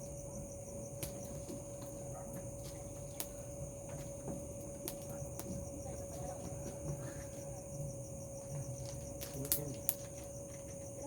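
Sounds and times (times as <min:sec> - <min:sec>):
crickets trilling: 0:00.0 - 0:11.0
sharp clicks: 0:08.8 - 0:10.1.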